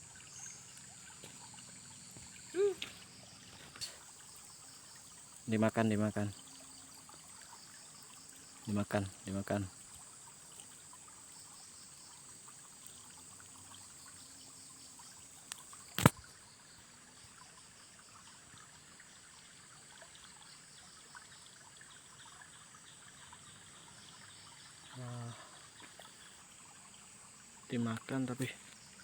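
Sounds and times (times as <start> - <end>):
river water trickling: 0.0 - 29.0
sharp click: 15.9 - 16.2.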